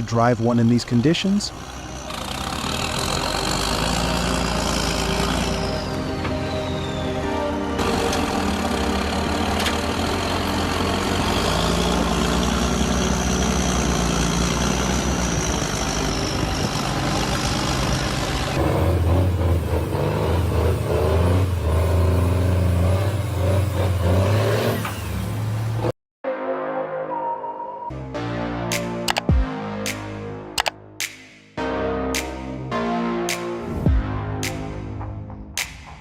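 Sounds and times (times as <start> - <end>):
deep engine drone: 0.0 - 25.9
truck engines revving: 0.0 - 25.9.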